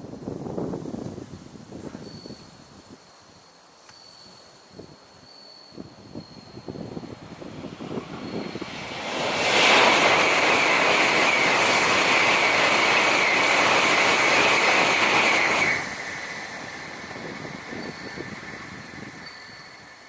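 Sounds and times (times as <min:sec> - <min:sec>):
high-speed train passing: 0:04.6 - 0:20.0.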